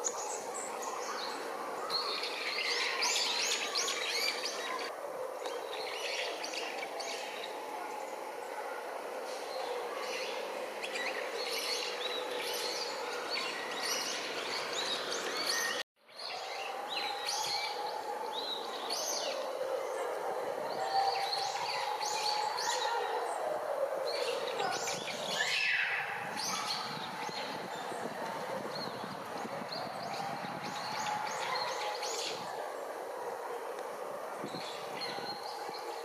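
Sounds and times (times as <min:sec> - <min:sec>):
birds chirping: 0:00.0 - 0:08.8.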